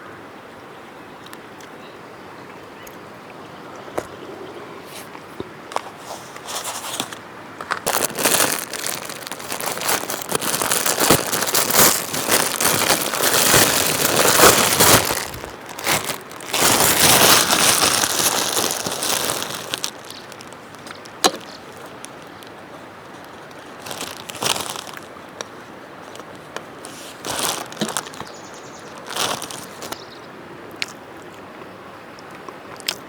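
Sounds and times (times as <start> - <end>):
crinkling and crumpling handling: 4.9 - 30.0.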